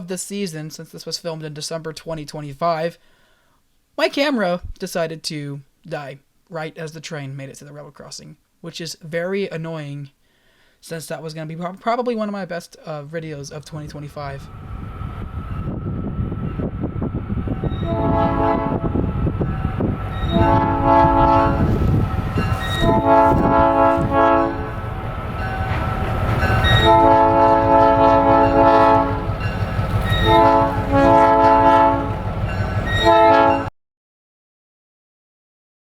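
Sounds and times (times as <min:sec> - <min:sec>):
rolling train: 0:13.9 - 0:33.7
locomotive air horn blasts: 0:17.7 - 0:19.1, 0:20.2 - 0:21.9, 0:22.5 - 0:24.8, 0:26.6 - 0:29.4, 0:30.0 - 0:32.2, 0:32.9 - 0:33.7.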